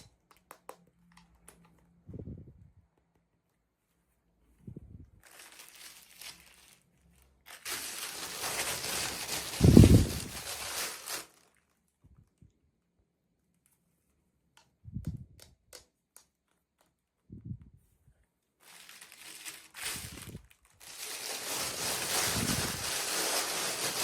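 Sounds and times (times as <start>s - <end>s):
packaging crinkling and rustling: 5.2s - 11.9s, 18.6s - 24.0s.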